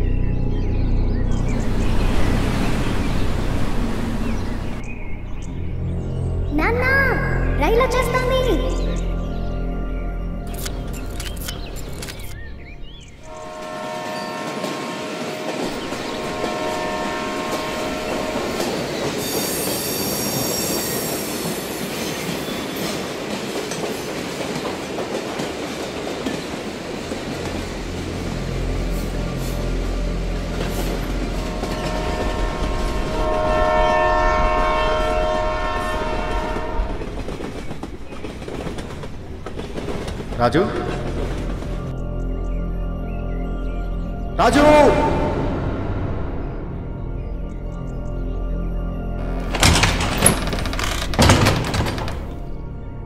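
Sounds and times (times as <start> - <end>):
train running on rails: 0.0 - 53.0
multi-note train horn: 13.2 - 21.0, 27.9 - 37.2.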